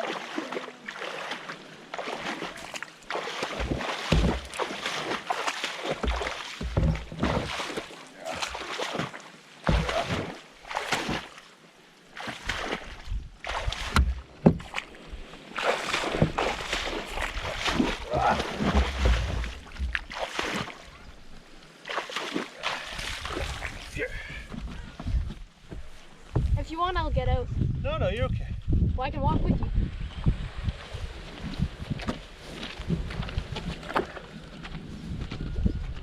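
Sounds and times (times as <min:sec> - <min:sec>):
water sloshing and splashing: 0:00.0 - 0:26.6.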